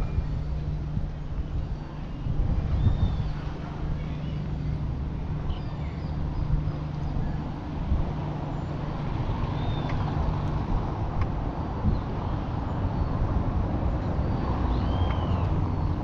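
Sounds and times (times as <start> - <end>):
distant road traffic rumble: 0.0 - 16.0
faint bird chirps: 14.3 - 15.9.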